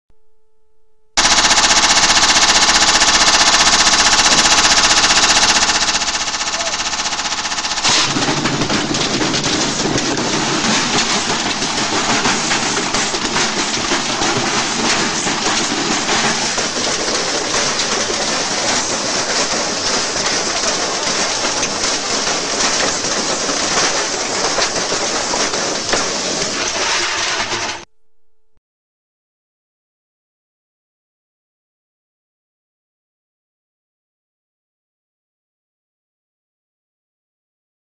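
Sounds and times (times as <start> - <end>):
brick hammering washing machine drum: 1.2 - 27.8.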